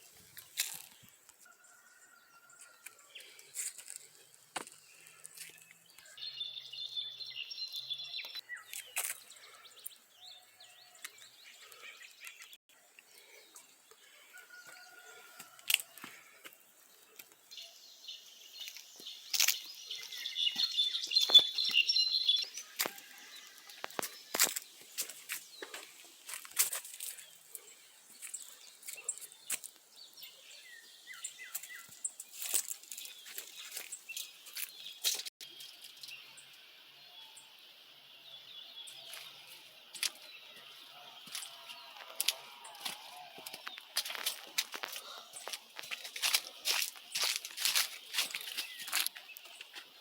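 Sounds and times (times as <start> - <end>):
birds twittering: 1.7 - 50.0.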